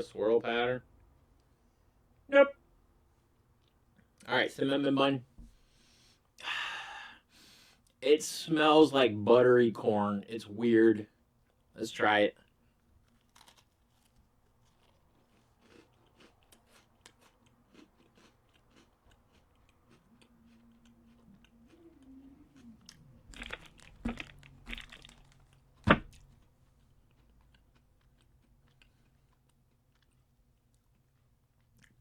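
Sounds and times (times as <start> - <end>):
cookie being bitten and chewed: 13.0 - 32.0.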